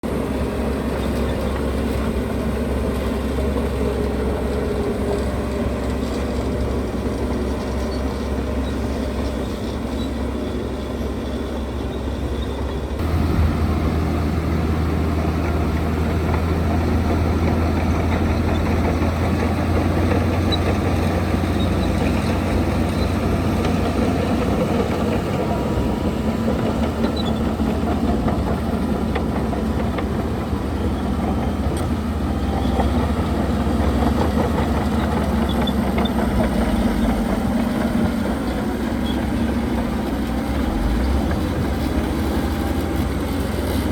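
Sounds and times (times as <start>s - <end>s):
heavy machinery diesel engines: 0.0s - 43.9s.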